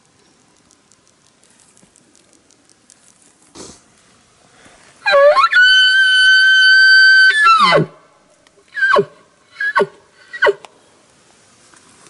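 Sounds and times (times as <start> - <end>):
elk bugle whistle: 5.0 - 7.9.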